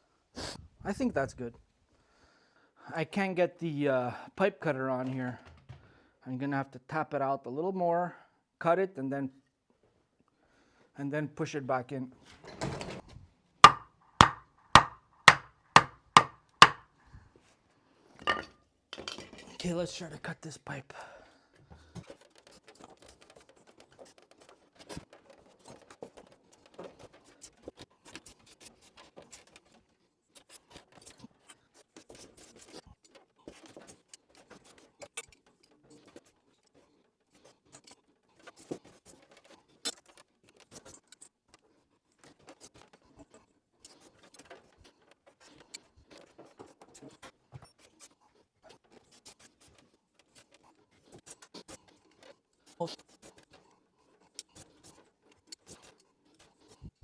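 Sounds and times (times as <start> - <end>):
metal pipe scraping and clicking: 13.6 - 16.8.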